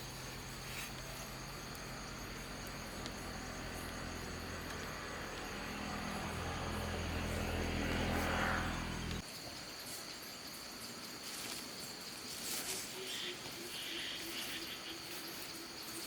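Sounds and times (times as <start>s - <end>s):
quiet outdoor ambience: 0.0s - 16.0s
engine running at low speed: 0.1s - 9.2s.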